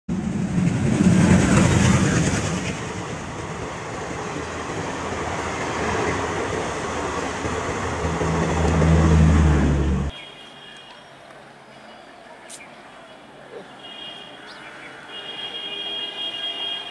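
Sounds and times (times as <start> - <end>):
train rushing past rattling: 0.1 - 10.1.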